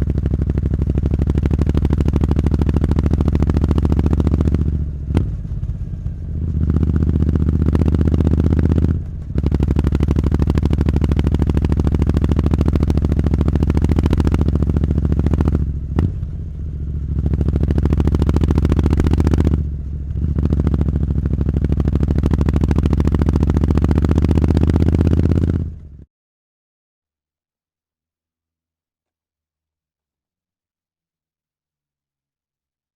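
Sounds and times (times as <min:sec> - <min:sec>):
motorcycle engine revving: 0:00.0 - 0:26.1.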